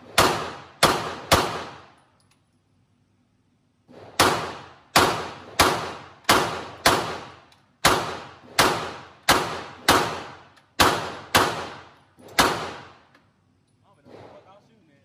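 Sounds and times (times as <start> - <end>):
pistol shots with echo: 0.0 - 2.0, 4.1 - 13.0.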